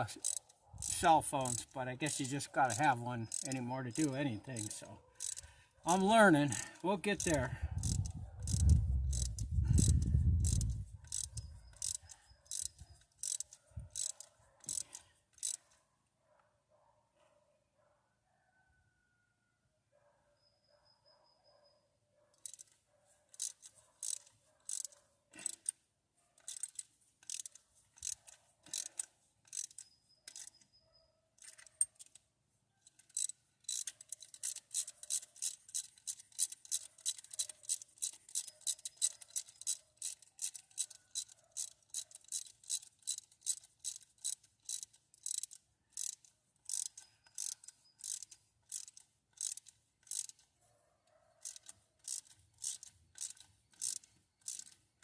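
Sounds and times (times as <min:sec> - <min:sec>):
ratchet wrench clicking: 0:00.0 - 0:15.8, 0:22.4 - 0:25.8, 0:26.4 - 0:30.6, 0:31.4 - 0:32.2, 0:32.9 - 0:50.5, 0:51.4 - 0:54.9.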